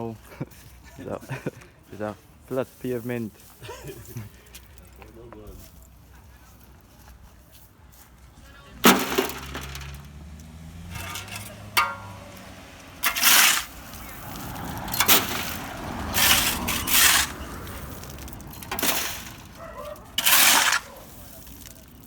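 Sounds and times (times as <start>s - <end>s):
debris crashing: 8.8s - 22.0s
shovel scraping rubble: 8.8s - 22.0s.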